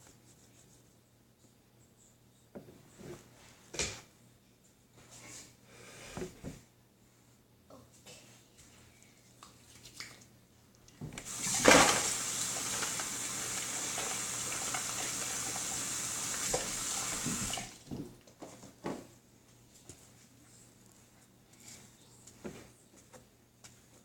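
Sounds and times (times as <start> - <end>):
water running from tap: 11.2 - 17.9.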